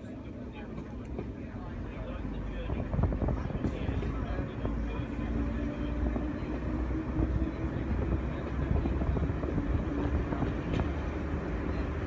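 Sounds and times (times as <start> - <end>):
diesel train engine rumble: 0.0 - 12.0.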